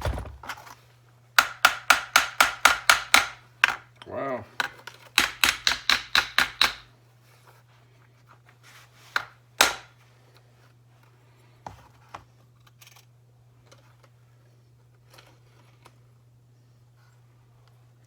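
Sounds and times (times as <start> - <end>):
tools clicking and knocking: 1.4 - 6.9.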